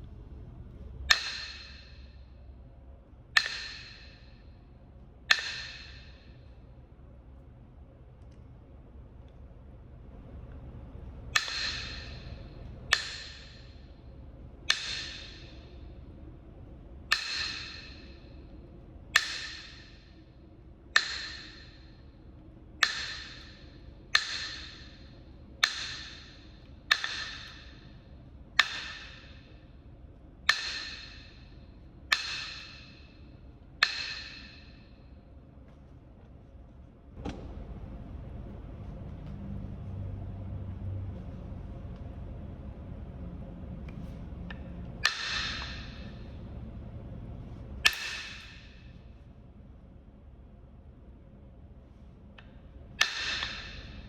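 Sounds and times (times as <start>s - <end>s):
stone knapping clicks: 1.0s - 2.0s, 3.4s - 4.2s, 5.3s - 6.2s, 11.4s - 13.6s, 14.7s - 15.6s, 17.1s - 18.1s, 19.2s - 19.9s, 20.9s - 21.8s, 22.8s - 25.0s, 25.6s - 27.8s, 28.6s - 29.4s, 30.5s - 31.3s, 32.1s - 33.0s.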